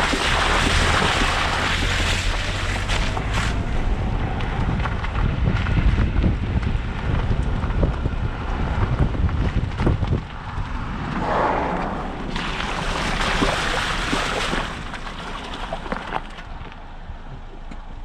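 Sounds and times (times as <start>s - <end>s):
low vehicle rumble: 0.0s - 18.0s
wind buffeting microphone: 2.4s - 15.9s.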